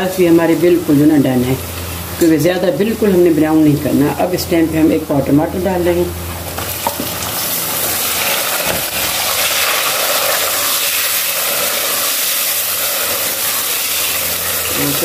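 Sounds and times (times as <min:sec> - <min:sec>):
tomatoes sizzling in oil: 0:06.3 - 0:15.0.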